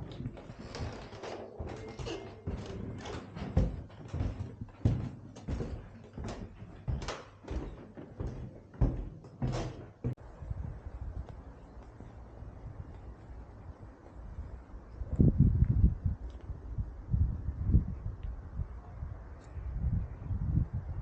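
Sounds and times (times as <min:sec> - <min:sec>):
irregular knocks and thumps: 0:00.0 - 0:10.2.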